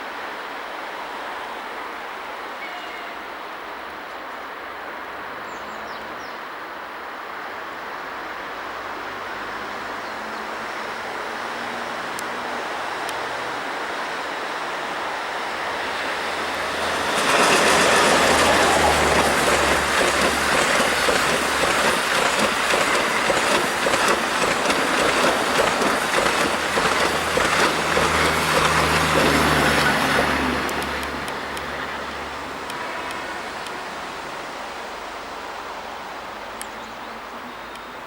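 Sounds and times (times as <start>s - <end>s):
train passing at speed: 0.0s - 38.0s
wheels clattering on rails: 11.5s - 33.8s.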